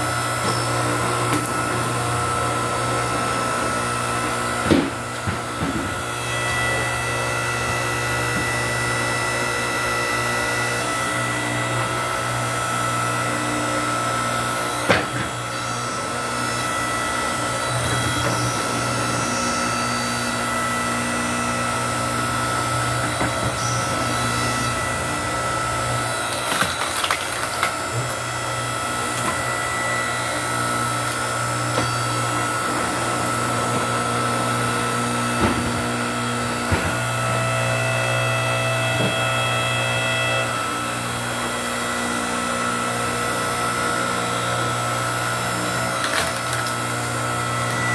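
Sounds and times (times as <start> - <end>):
log splitter motor humming: 0.0 - 47.9
logs cracking as they split: 23.2 - 28.1.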